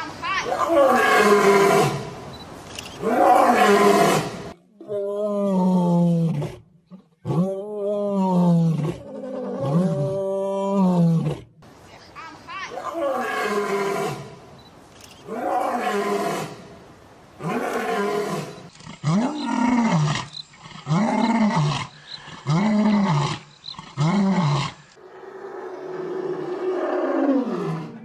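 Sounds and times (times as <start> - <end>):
animal roaring calls: 24.0 - 28.0.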